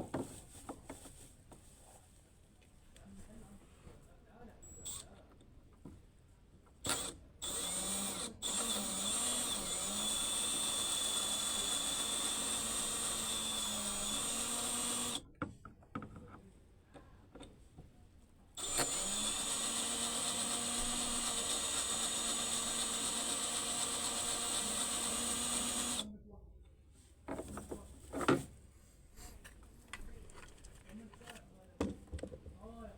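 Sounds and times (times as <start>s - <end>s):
power drill running: 4.8s - 5.0s, 6.8s - 15.2s, 18.6s - 26.1s.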